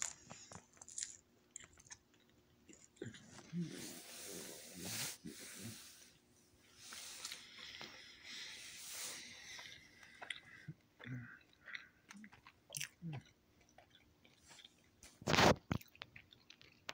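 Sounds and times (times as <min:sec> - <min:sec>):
soft breathy hiss: 0:03.4 - 0:10.7.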